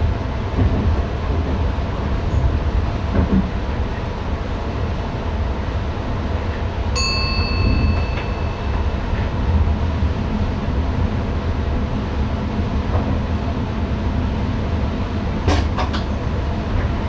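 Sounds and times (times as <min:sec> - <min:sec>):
train running with low rumble: 0:00.0 - 0:17.0
bell-like ding: 0:07.0 - 0:09.4.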